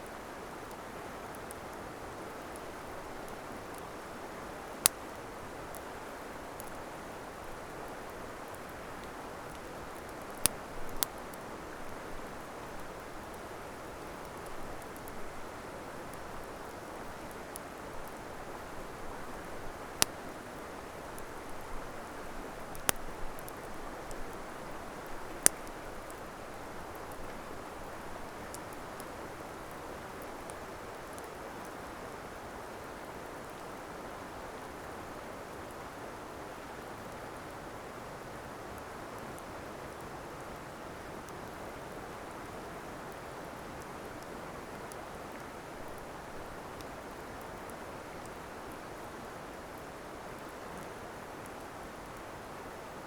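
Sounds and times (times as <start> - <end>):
campfire hissing: 0.1 - 31.8
fire crackling and popping: 2.4 - 31.4.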